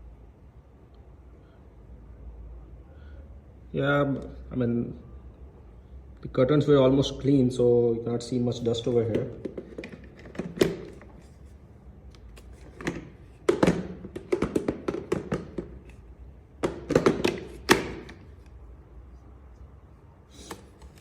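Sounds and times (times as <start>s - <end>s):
plastic parts clicking and knocking: 9.0s - 11.3s, 12.2s - 16.0s, 16.6s - 18.4s.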